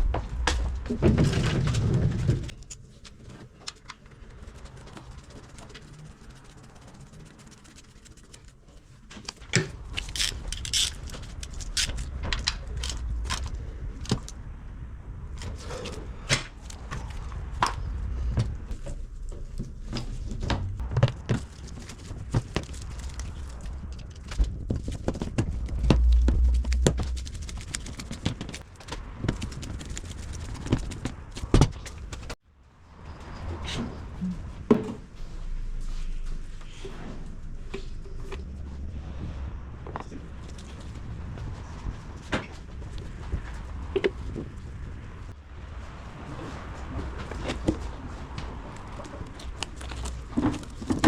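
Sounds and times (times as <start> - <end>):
low rumble: 0.0 - 3.2, 9.4 - 51.0
metallic clicks and scrapes: 0.3 - 14.5.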